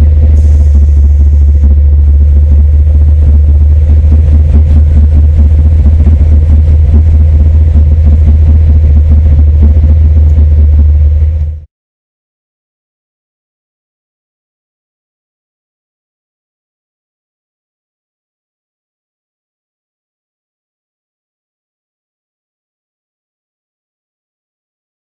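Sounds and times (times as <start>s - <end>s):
loud vee eight engine running: 0.0s - 11.7s.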